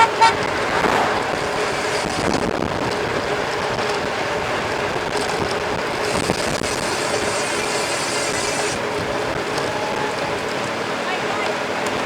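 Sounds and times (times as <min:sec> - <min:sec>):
wind rushing on microphone: 0:00.0 - 0:06.7
bike tyres rolling: 0:00.0 - 0:11.4.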